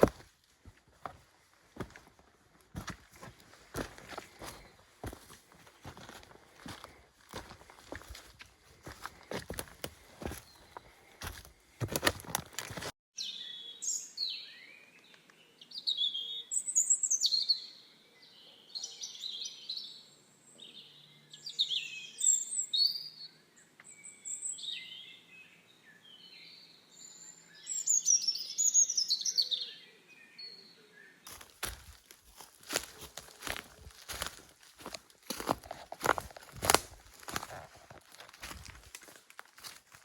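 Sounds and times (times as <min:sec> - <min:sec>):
footsteps: 0:00.0 - 0:13.0, 0:31.3 - 0:40.0
songbirds singing: 0:01.0 - 0:40.0.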